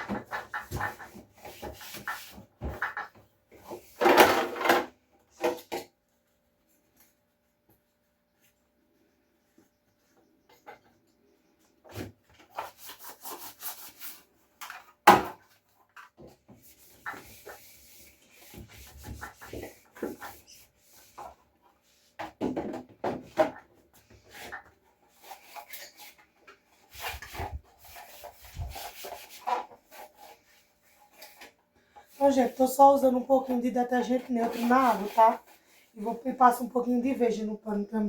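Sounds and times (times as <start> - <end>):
knocks and clatters of parts: 2.0 - 5.9, 22.2 - 23.8
cloth rubbing and wiping: 26.9 - 31.4, 32.1 - 36.2.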